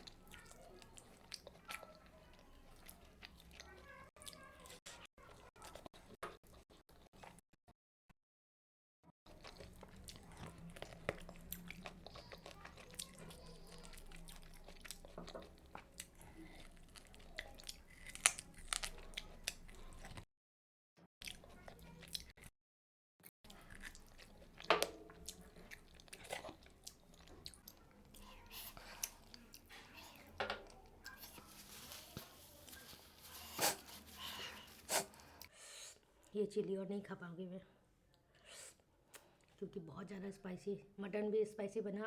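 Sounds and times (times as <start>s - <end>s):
chewing food: 0.0s - 7.4s, 9.3s - 20.3s, 21.2s - 22.5s, 23.4s - 35.6s
crunchy bites: 16.9s - 20.2s.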